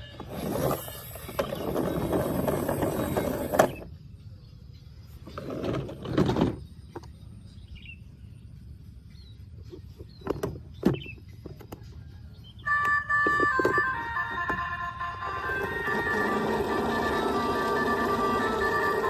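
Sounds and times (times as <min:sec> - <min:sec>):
plastic toy vehicles rattling: 0:00.0 - 0:03.9, 0:05.2 - 0:06.9, 0:12.9 - 0:19.0.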